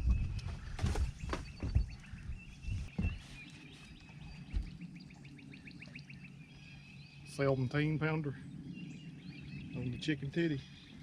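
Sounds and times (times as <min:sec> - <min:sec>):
low thumps: 0:00.0 - 0:03.3.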